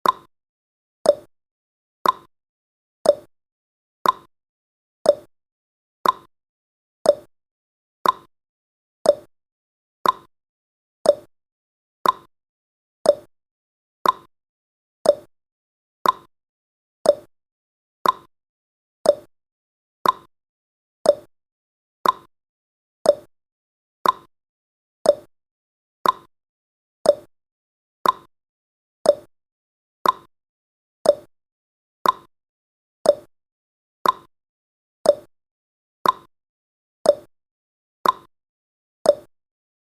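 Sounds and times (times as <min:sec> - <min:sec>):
clock ticking: 0:02.0 - 0:02.3, 0:04.0 - 0:04.3, 0:06.0 - 0:06.3, 0:08.0 - 0:08.3, 0:10.0 - 0:10.3, 0:12.0 - 0:12.3, 0:14.0 - 0:14.3, 0:15.1 - 0:15.3, 0:16.0 - 0:16.3, 0:18.0 - 0:18.3, 0:19.1 - 0:19.3, 0:20.0 - 0:20.3, 0:21.1 - 0:21.3, 0:22.0 - 0:22.3, 0:24.0 - 0:24.3, 0:26.0 - 0:26.3, 0:28.0 - 0:28.3, 0:29.1 - 0:29.3, 0:30.0 - 0:30.3, 0:31.1 - 0:31.3, 0:32.0 - 0:32.3, 0:33.1 - 0:33.3, 0:34.0 - 0:34.3, 0:35.1 - 0:35.3, 0:36.0 - 0:36.3, 0:38.0 - 0:38.3, 0:39.1 - 0:39.3.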